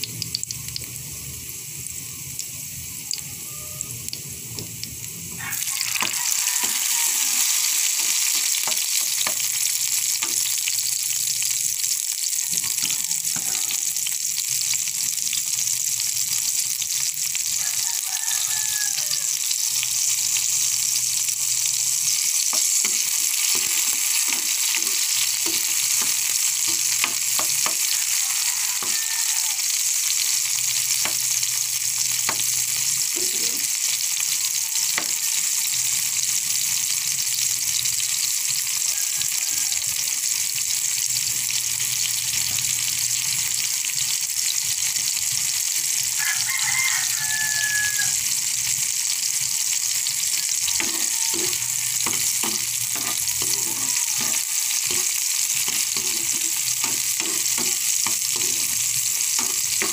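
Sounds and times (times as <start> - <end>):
food sizzling in frying pan: 0.0 - 59.9
spatula scraping and tapping pan: 12.5 - 13.8, 22.4 - 28.0, 50.7 - 59.9.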